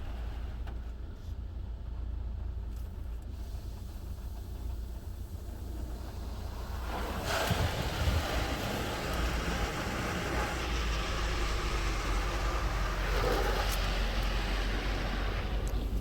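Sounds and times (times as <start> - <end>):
low machine rumble: 0.0 - 16.0
water spray hissing: 5.6 - 16.0.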